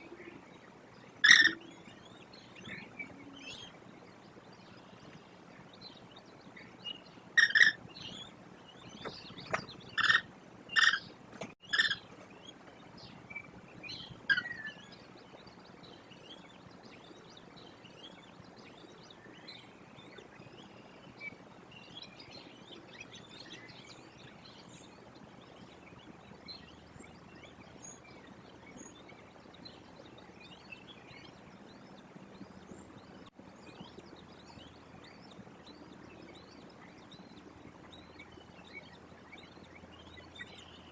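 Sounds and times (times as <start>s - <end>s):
songbirds chirping faintly: 0.0s - 40.9s
loud bird calls: 1.1s - 3.8s, 6.9s - 15.1s.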